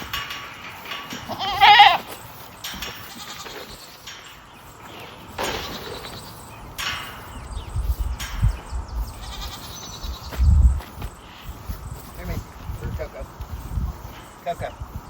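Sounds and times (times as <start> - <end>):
farm animal bleating call: 1.1 - 2.2, 2.9 - 4.2, 5.4 - 6.2, 9.2 - 10.3.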